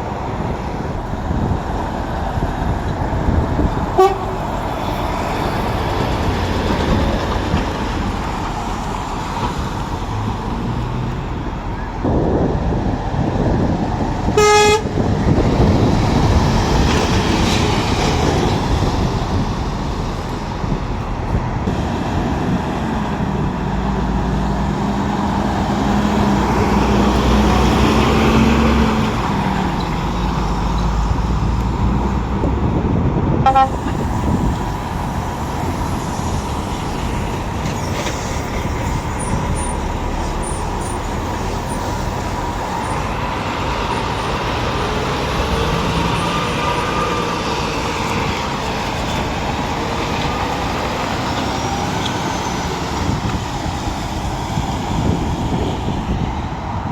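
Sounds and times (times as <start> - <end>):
diesel lorry engines running: 0.0 - 56.9
short horn toot: 14.4 - 14.9, 33.4 - 34.0.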